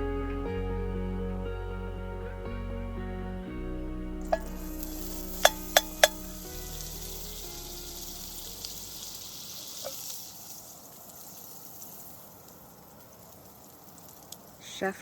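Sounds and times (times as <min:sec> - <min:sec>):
background music: 0:00.0 - 0:09.4
pancakes sizzling in a frying pan: 0:04.4 - 0:14.6.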